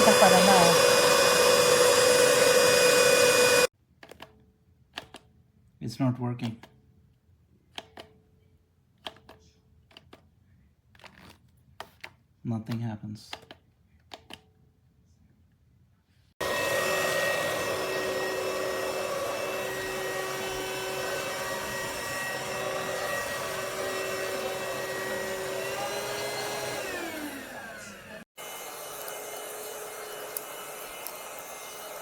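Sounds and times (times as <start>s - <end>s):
cordless vacuum cleaner whining: 0.0s - 3.7s, 16.4s - 32.0s.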